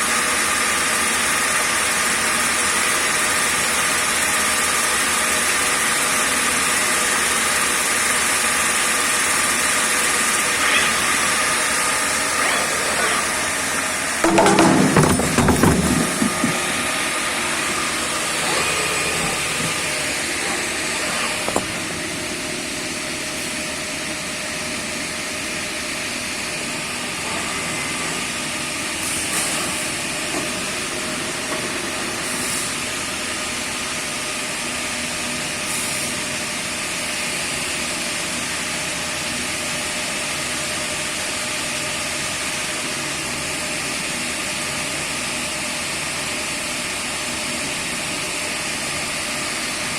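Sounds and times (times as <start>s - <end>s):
grinder running: 8.5s - 21.8s.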